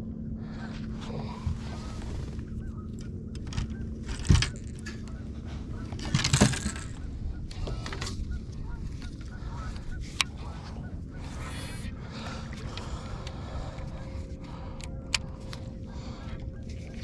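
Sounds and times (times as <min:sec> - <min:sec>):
steady low background: 0:00.0 - 0:17.0
goose-like honks: 0:06.7 - 0:11.8.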